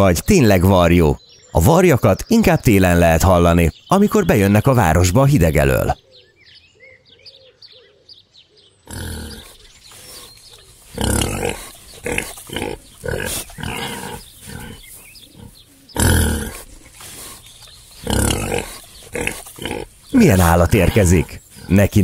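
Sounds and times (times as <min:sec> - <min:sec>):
faint bird chirps: 0:00.0 - 0:22.0
pig oinking: 0:08.9 - 0:22.0.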